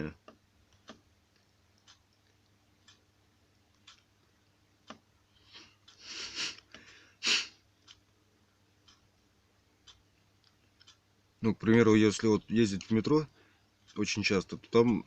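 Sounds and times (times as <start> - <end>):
clock ticking: 0.0 - 7.0, 7.6 - 15.0
person sniffing and breathing: 5.3 - 7.6.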